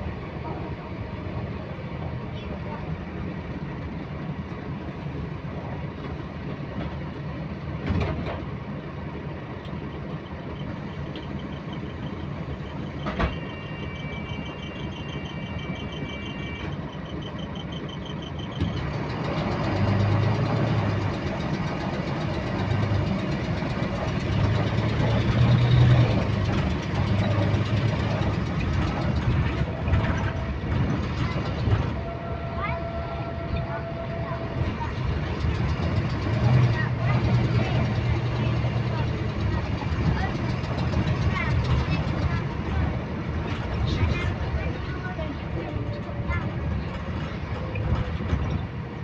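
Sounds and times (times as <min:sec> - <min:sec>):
bus diesel engine idling: 0:00.0 - 0:49.0
repetitive engine clicking: 0:14.4 - 0:32.0, 0:34.5 - 0:45.4.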